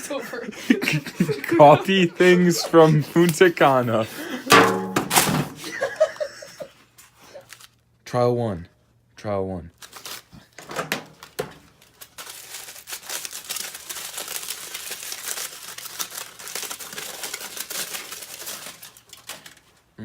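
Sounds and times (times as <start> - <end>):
aluminium foil crumpling: 7.0 - 7.8, 9.8 - 20.0.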